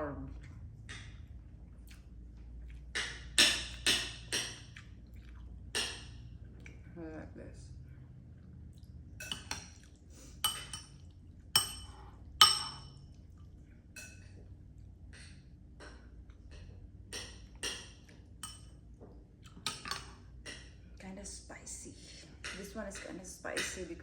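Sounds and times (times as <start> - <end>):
cutlery clinking on a dish: 9.2 - 9.8, 10.4 - 11.0, 11.6 - 13.0, 14.0 - 14.3, 17.2 - 18.8, 19.6 - 20.7.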